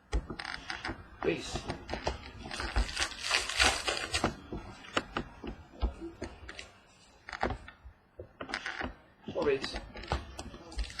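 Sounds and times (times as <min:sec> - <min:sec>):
cards rustling and sliding: 0:02.0 - 0:05.1.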